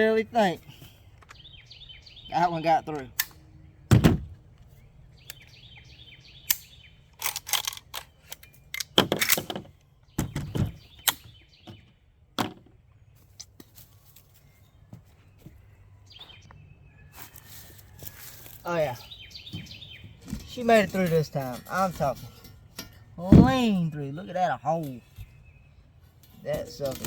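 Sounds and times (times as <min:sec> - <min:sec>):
birds chirping: 0:00.0 - 0:27.0
sharp thud: 0:03.9 - 0:04.4
knocks and rustles: 0:03.9 - 0:04.8, 0:07.2 - 0:15.6, 0:17.1 - 0:23.9.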